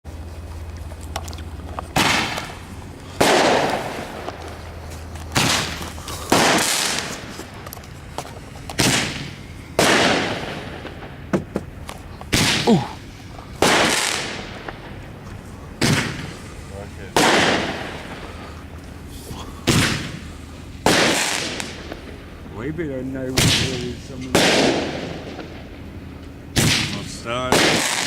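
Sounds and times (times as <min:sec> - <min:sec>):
fireworks bangs: 0:01.9 - 0:15.2, 0:15.8 - 0:18.4, 0:19.6 - 0:22.4, 0:23.3 - 0:25.8, 0:26.5 - 0:28.0
fireworks hiss: 0:02.0 - 0:07.6, 0:15.8 - 0:22.4.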